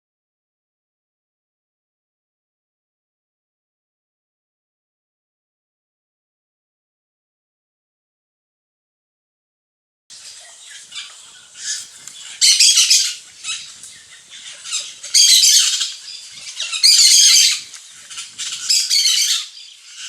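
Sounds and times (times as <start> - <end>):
small birds chattering: 10.1 - 20.0.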